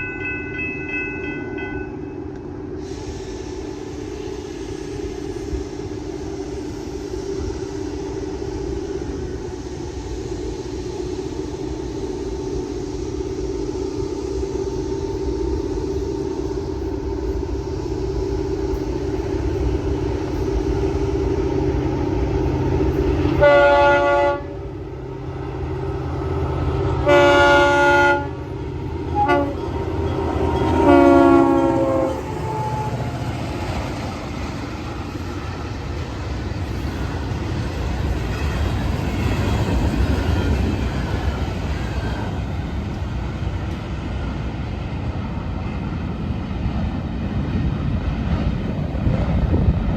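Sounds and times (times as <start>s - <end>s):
passing train rumble: 0.0s - 49.9s
locomotive horn blasts: 23.0s - 24.8s, 26.6s - 33.2s.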